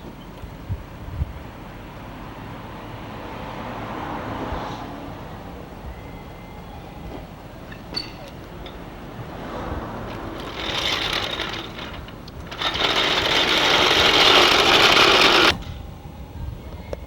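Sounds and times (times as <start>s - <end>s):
impact wrench rattling: 10.1s - 15.6s.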